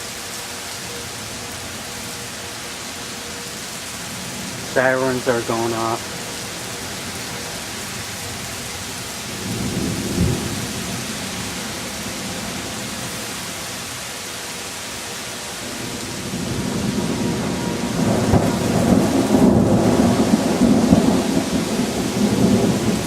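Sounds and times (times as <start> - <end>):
heavy rain pouring: 0.0 - 23.0
thunder rumbling: 4.0 - 13.4, 15.6 - 23.0.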